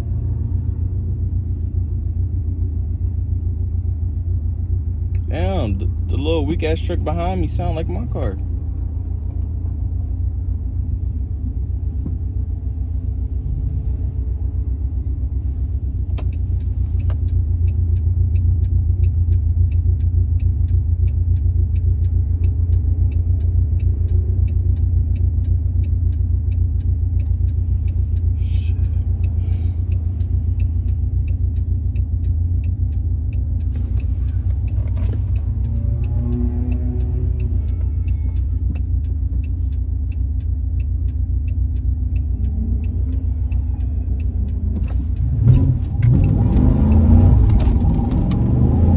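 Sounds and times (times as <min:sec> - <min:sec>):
car engine and road noise: 0:00.0 - 0:48.9
regular ticking: 0:00.8 - 0:48.9.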